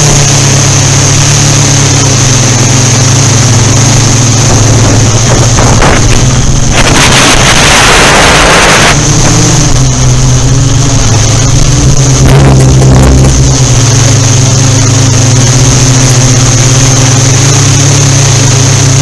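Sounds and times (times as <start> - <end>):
drone rotor hum and whine: 0.0 - 19.0
wind gust on microphone: 3.6 - 13.6.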